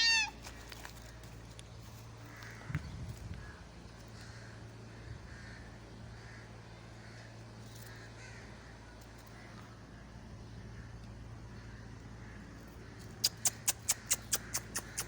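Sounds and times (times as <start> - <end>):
steady low hum: 0.0 - 15.0
crows cawing: 2.2 - 2.8, 3.4 - 9.8.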